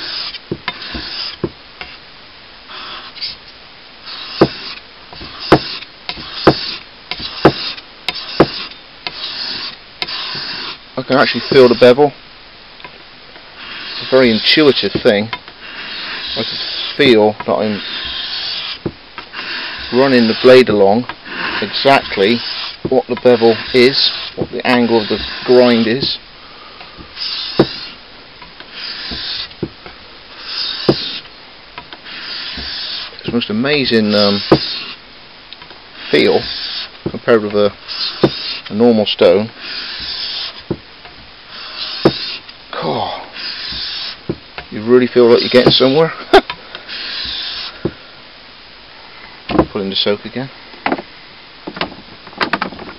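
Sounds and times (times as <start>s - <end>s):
blade scraping on sharpening stone: 17.7s - 18.8s, 21.4s - 26.2s
sharp knock: 27.6s - 27.8s.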